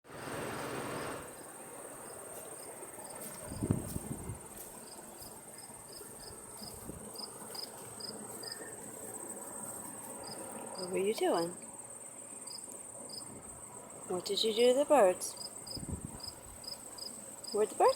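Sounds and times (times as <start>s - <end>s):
crickets chirping: 0.1s - 17.9s.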